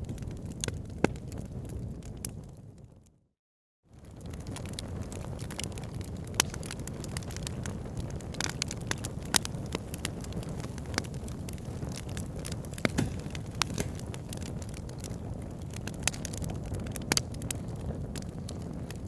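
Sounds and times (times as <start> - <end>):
fire crackling in a fireplace: 0.0 - 3.2, 3.9 - 19.0.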